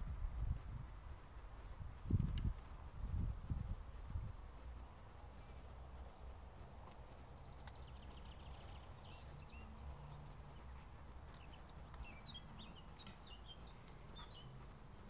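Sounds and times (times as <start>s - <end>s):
low background rumble: 0.0s - 15.0s
faint bird chirps: 7.4s - 14.7s.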